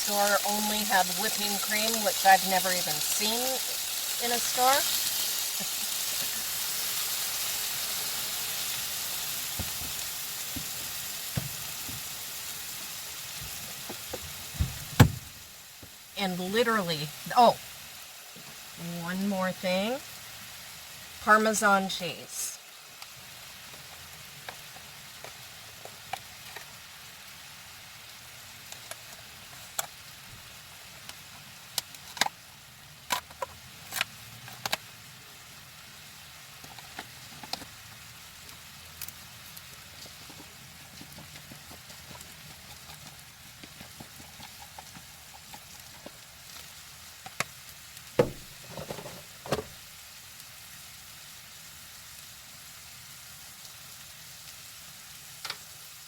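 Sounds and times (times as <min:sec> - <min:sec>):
food sizzling in a frying pan: 0:00.0 - 0:56.0
loud knocks: 0:48.2 - 0:49.7.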